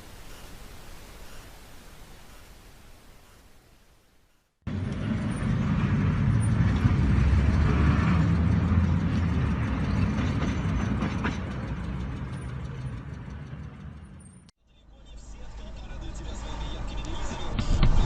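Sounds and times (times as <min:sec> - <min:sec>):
vehicle road and engine noise: 0:04.2 - 0:18.0.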